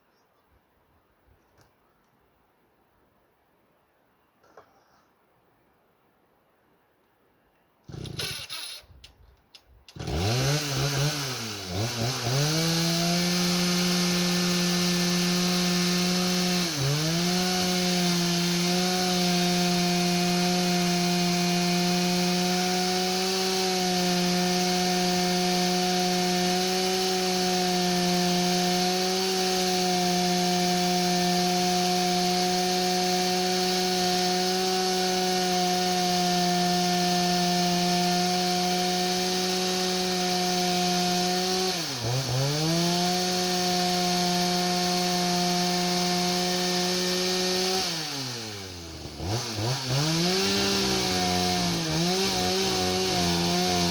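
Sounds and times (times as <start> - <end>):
chainsaw engine revving: 7.9 - 9.0, 9.9 - 53.9
starter cord pulls: 7.9 - 10.2.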